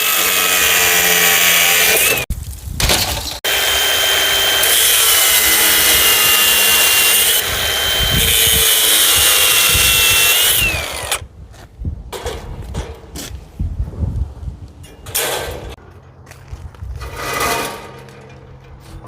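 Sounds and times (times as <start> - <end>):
electric power tool whining: 3.4 - 11.2.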